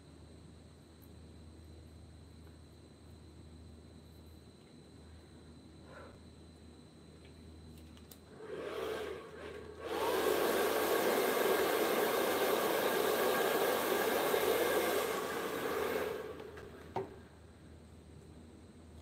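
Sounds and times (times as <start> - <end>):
small electric motor whirring: 8.3 - 16.8.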